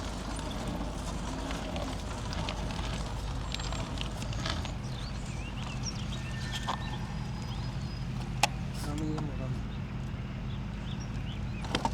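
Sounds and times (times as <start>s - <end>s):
bicycle rolling on trail: 0.0s - 11.9s
bird chirping: 3.4s - 11.9s.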